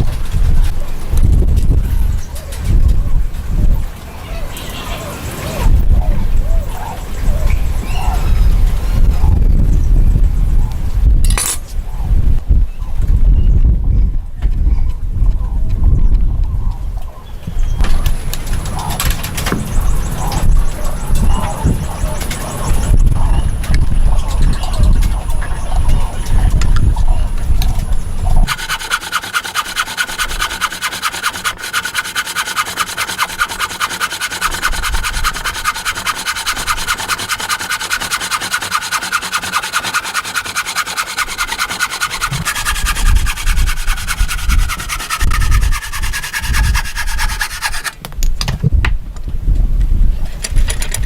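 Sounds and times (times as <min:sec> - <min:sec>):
hand tool rasping on wood: 0:00.0 - 0:01.3, 0:28.4 - 0:48.0.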